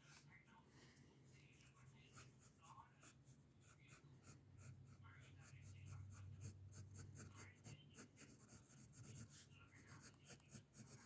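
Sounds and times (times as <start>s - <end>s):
pencil scratching on paper: 1.4s - 11.0s.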